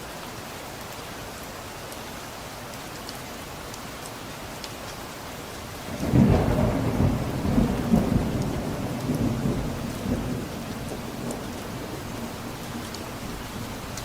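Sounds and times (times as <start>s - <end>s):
steady rain: 0.0s - 14.0s
thunder rolling: 5.9s - 12.7s.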